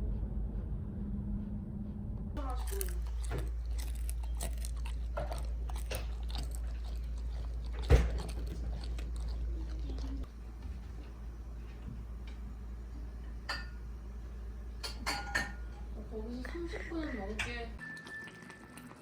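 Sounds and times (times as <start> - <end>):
low hum: 0.0 - 17.8
crunchy chewing: 2.4 - 13.5.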